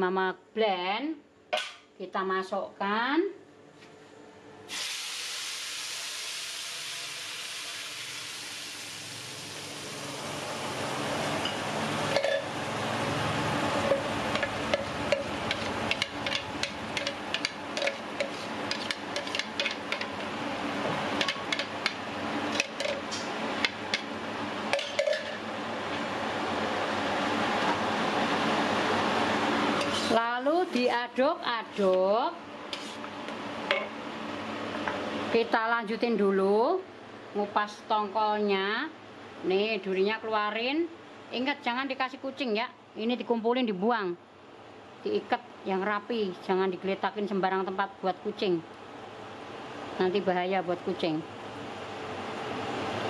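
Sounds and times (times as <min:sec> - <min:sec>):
spice paste sizzling in hot oil: 0:04.7 - 0:11.0, 0:14.2 - 0:19.9
spatula scraping wok: 0:13.7 - 0:20.2, 0:29.8 - 0:30.2, 0:32.7 - 0:33.1.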